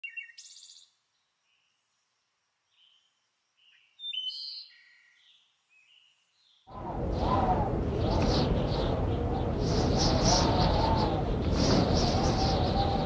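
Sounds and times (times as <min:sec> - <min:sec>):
birds chirping: 0:02.7 - 0:13.0.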